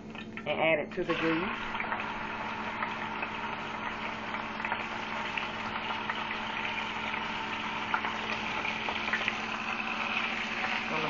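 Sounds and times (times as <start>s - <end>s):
faint steady hum: 0.0s - 11.0s
chicken sizzling in oil: 1.0s - 11.0s.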